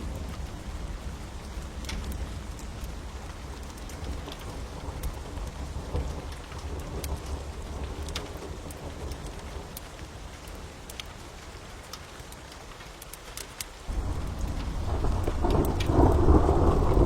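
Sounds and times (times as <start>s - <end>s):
low rumble of thunder: 0.0s - 10.8s, 13.9s - 17.0s
steady rain: 0.0s - 17.0s
wood fire crackling and popping: 0.0s - 17.0s.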